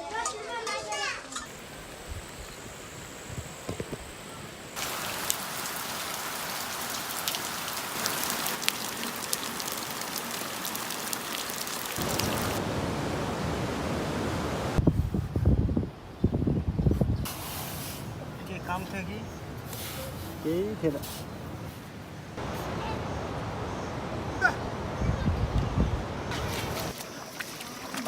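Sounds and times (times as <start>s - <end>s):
raindrops hitting a surface: 1.5s - 12.8s
rain falling: 1.5s - 14.8s.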